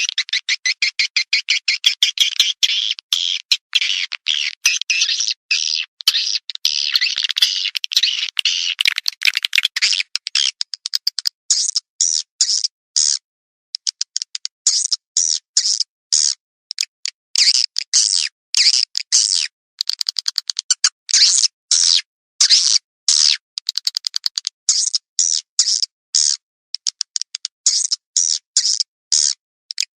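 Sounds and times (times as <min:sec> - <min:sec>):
swiftlet chirps and twitters: 0:00.0 - 0:13.2.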